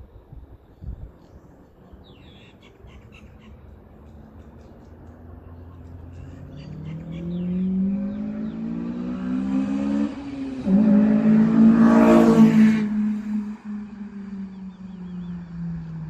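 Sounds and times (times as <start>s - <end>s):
car engine revving: 5.9s - 16.0s.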